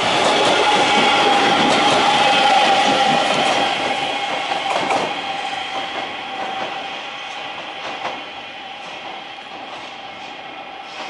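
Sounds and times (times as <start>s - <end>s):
electric train passing: 0.0s - 11.0s.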